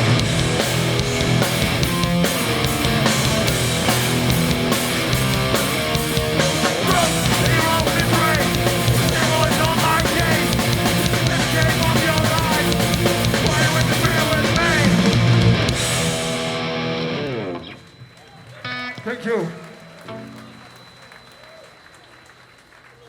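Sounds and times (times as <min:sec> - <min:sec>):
drum kit and cymbals: 0:00.0 - 0:16.7
bass guitar: 0:00.0 - 0:17.8
distorted electric guitars: 0:00.0 - 0:21.1
person singing: 0:06.4 - 0:15.2.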